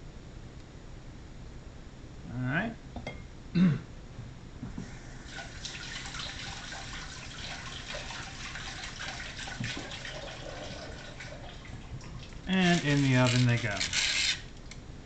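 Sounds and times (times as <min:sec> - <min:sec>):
kitchen tap running: 0:05.2 - 0:13.8.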